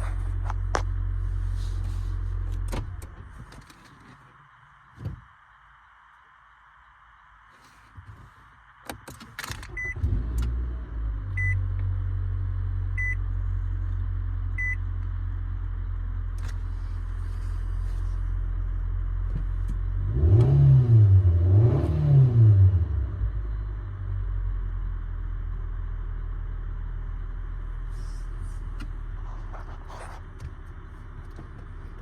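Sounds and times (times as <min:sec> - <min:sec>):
car engine starting and idling: 0:08.6 - 0:32.0
engine revving: 0:20.0 - 0:23.3.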